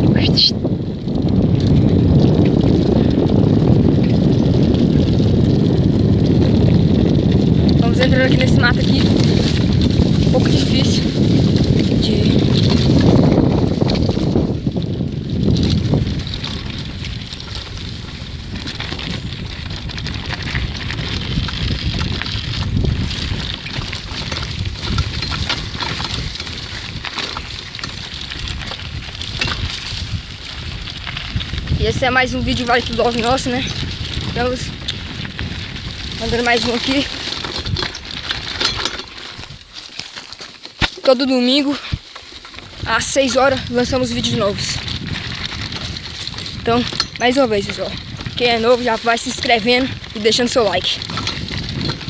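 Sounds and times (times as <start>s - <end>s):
bike rumbling over dirt trail: 0.0s - 52.0s
wind buffeting microphone: 0.0s - 52.0s
clicks and rattles: 36.1s - 41.2s, 45.2s - 52.0s.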